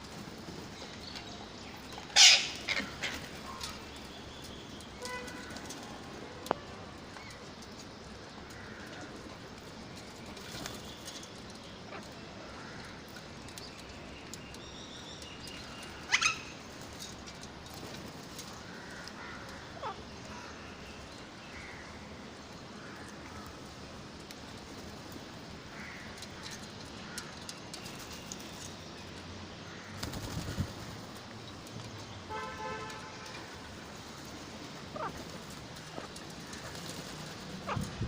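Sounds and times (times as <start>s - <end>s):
parrot squawk: 2.2s - 3.2s.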